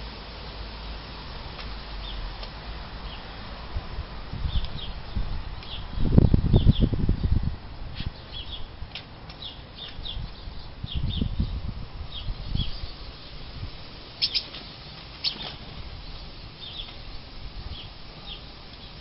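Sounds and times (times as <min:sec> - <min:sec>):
birds chirping: 0:02.0 - 0:02.2, 0:03.0 - 0:03.4, 0:04.4 - 0:07.4, 0:08.1 - 0:19.0
sharp loud bird calls: 0:14.2 - 0:19.0.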